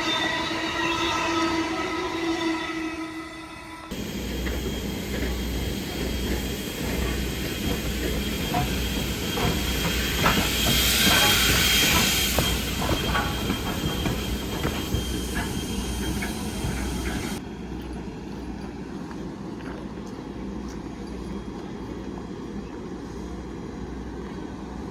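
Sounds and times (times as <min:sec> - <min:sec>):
train hiss: 0:00.0 - 0:17.4
train rumble: 0:00.0 - 0:24.9
train wheels clicking over rail joints: 0:03.9 - 0:21.7.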